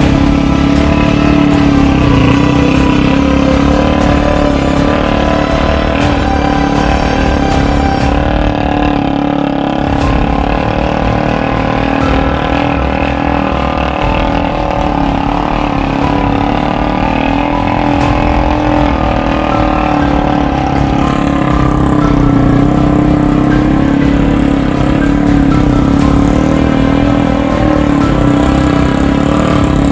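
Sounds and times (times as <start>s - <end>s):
motorcycle engine running: 0.0s - 29.9s.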